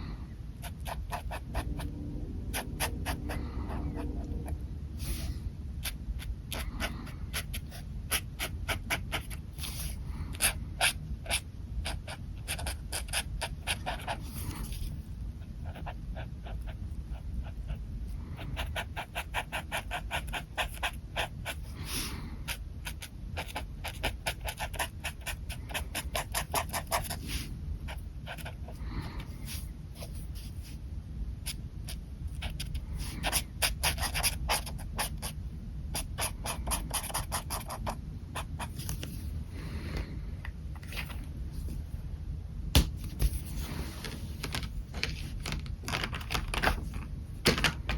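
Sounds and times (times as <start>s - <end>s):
low background rumble: 0.0s - 47.9s
pen scratching on paper: 0.6s - 28.8s, 31.4s - 39.1s.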